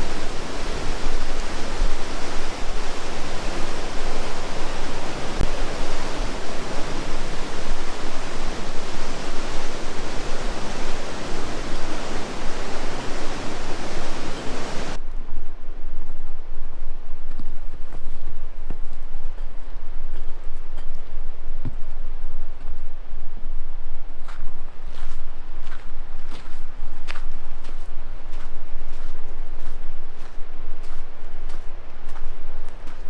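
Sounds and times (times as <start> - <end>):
rushing water of falls and rapids: 0.0 - 15.0.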